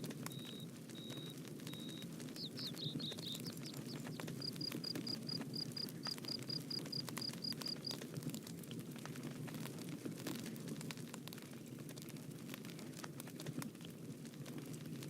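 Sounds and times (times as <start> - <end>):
bonfire crackling: 0.0 - 15.0
high chirping call: 0.3 - 4.1.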